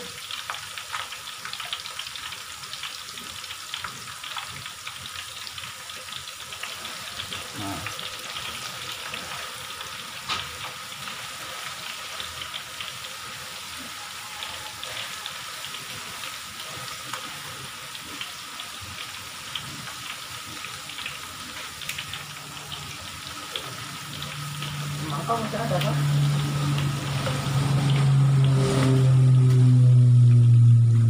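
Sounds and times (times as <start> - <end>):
tofu deep-frying in oil: 0.0 - 31.0.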